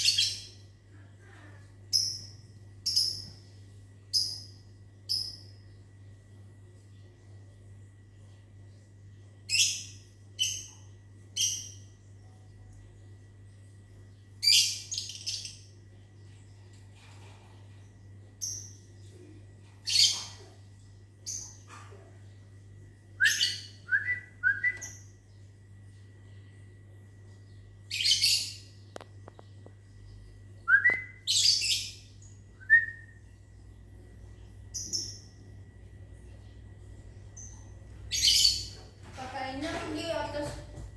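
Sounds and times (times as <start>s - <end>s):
steady low hum: 0.0s - 40.9s
lovebirds shrill chirps: 30.8s - 32.0s, 37.4s - 38.8s
lovebirds shrill calls: 38.1s - 38.8s.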